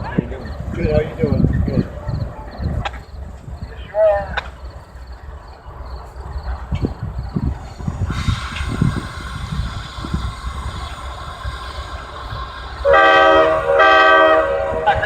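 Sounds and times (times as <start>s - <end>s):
low train rumble: 0.0s - 15.0s
train horn blasts: 12.8s - 15.0s.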